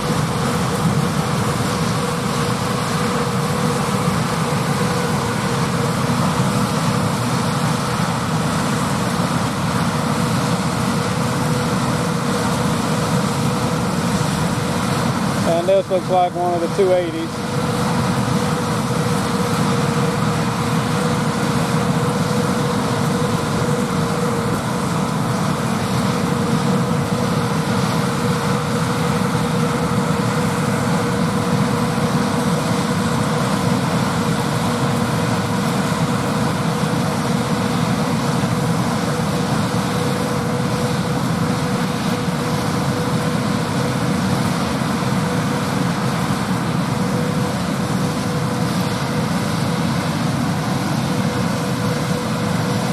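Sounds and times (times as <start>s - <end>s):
tractor and picker running: 0.0s - 52.9s.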